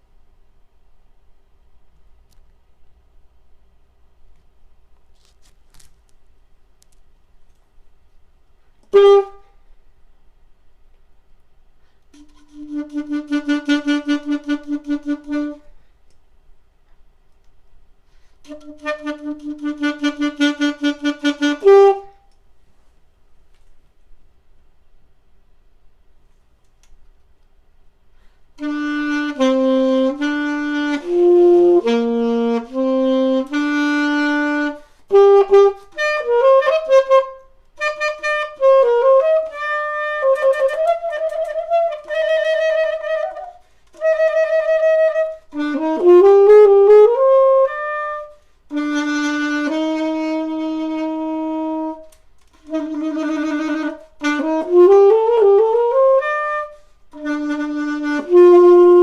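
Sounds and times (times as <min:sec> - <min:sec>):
wind instrument melody: 0:08.8 - 0:09.6, 0:12.1 - 0:15.8, 0:18.4 - 0:22.3, 0:28.6 - 0:59.0.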